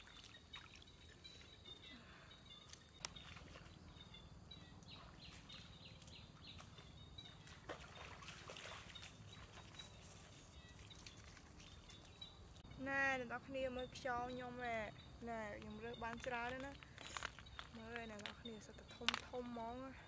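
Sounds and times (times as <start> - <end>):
bird chirping: 0.0 - 20.0
feet wading in shallow water: 2.5 - 4.2, 4.9 - 12.1.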